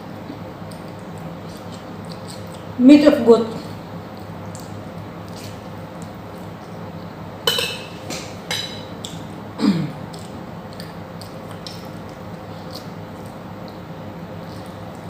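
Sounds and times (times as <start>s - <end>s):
utensils clinking on a plate: 7.5s - 8.9s.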